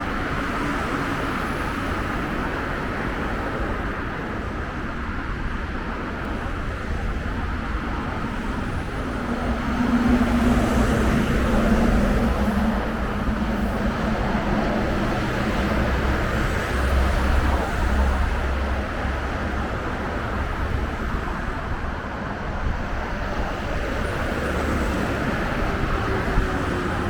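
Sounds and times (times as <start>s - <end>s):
coach engine rumbling: 5.8s - 27.0s.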